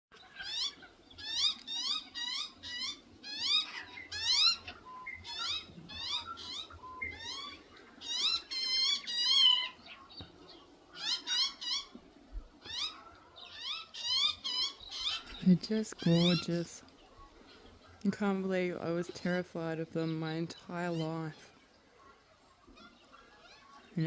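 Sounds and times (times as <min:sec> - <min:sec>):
bird chirping: 0:00.1 - 0:24.0
bird trilling: 0:00.2 - 0:17.8.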